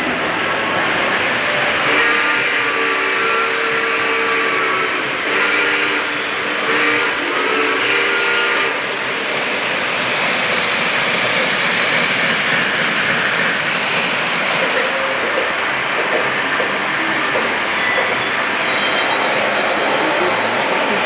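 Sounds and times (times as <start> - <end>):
model trains rumbling on track: 0.0 - 21.0
model train chime horn: 1.5 - 8.8.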